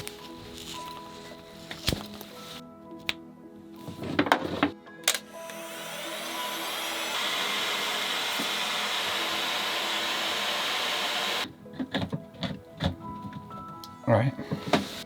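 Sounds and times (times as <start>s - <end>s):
electric tool motor with air rush: 5.1s - 11.5s, 14.8s - 15.0s.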